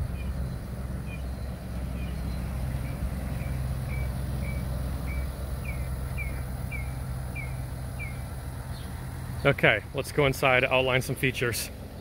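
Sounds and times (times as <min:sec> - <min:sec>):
bird chirping: 0:00.0 - 0:09.6.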